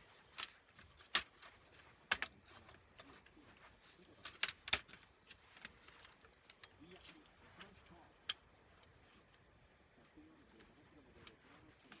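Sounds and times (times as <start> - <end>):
small parts and tools clicking: 0.0 - 9.4.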